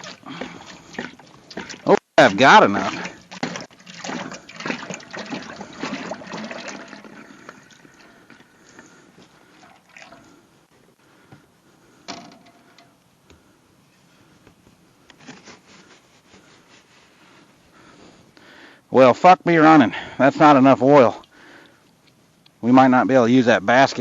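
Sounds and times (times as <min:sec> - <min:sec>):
oil glugging from a jug: 0:00.0 - 0:10.4.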